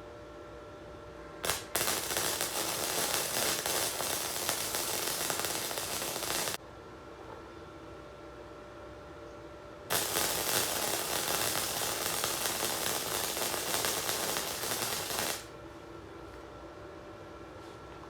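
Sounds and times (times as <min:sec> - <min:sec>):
electric welder arc crackling: 0:01.4 - 0:06.6, 0:09.9 - 0:15.5.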